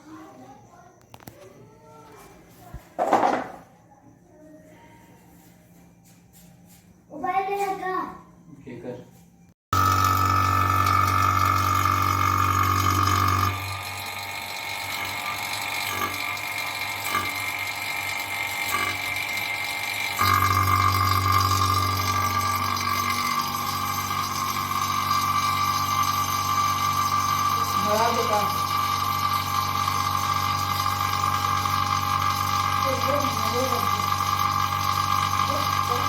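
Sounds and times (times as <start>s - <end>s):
electric pump motor humming: 9.7s - 36.0s.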